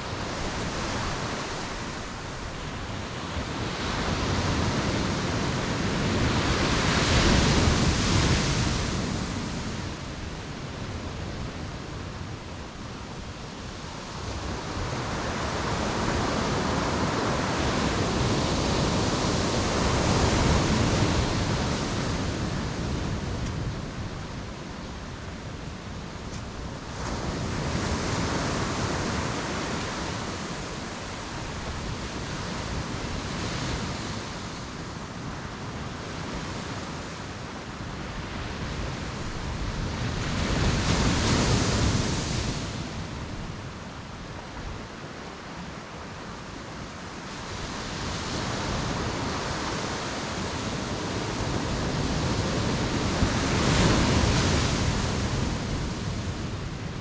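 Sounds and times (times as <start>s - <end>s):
sea waves breaking on beach: 45.0s - 57.0s.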